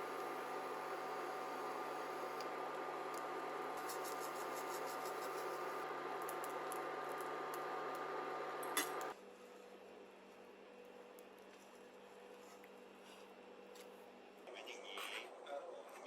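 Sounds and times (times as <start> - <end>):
appliance motor humming: 0.0 - 9.1.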